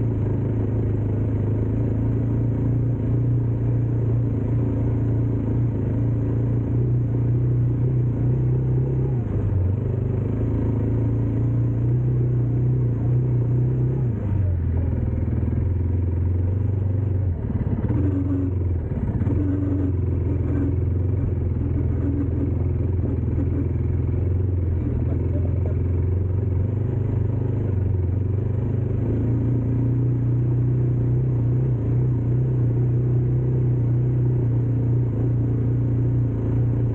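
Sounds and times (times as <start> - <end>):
dirt bike engine running: 8.9 - 31.4.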